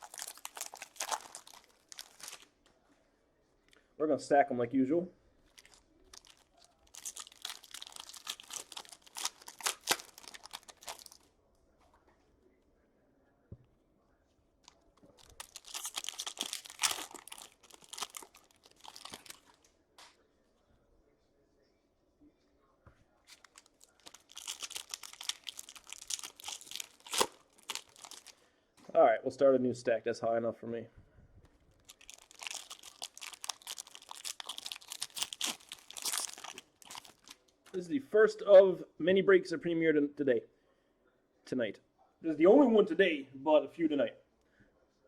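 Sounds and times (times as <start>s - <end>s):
packaging crinkling and tearing: 0.0s - 2.5s, 5.5s - 11.3s, 14.7s - 19.6s, 23.3s - 28.4s, 31.8s - 37.6s.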